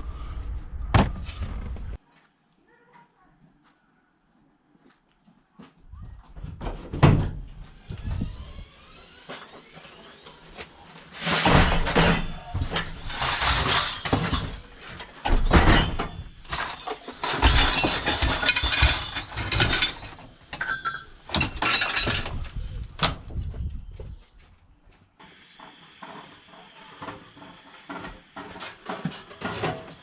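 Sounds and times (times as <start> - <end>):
scrap metal clattering: 11.0 - 22.6.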